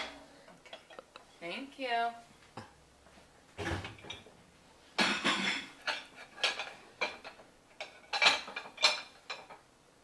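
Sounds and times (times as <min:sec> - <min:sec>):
dishes and cutlery clattering: 0:00.0 - 0:01.1, 0:03.6 - 0:04.3, 0:05.0 - 0:09.7.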